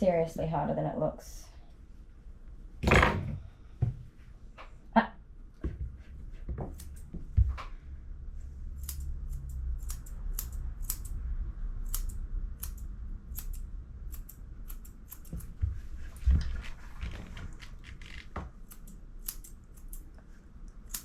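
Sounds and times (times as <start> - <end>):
scissors snipping fur: 6.7 - 7.1, 8.8 - 11.2, 11.8 - 15.6, 18.5 - 21.0.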